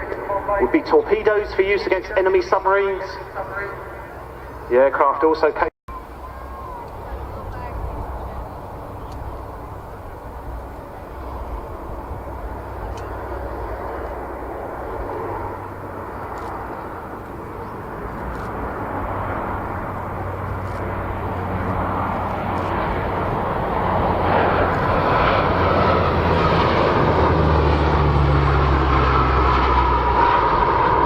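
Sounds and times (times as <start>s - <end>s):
turboprop engines droning: 0.0s - 31.0s.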